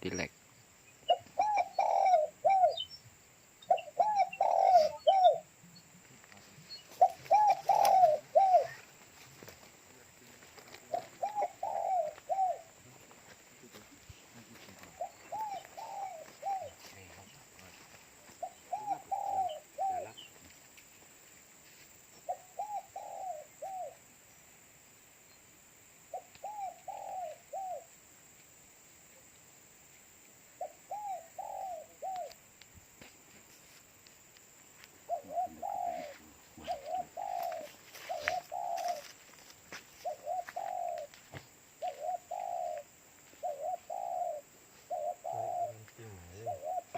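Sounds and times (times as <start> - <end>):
dove cooing: 1.1 - 3.0, 3.7 - 5.6, 6.4 - 20.4, 22.2 - 24.0, 26.1 - 27.9, 30.6 - 32.4, 35.1 - 39.2, 40.0 - 41.2, 41.8 - 46.9.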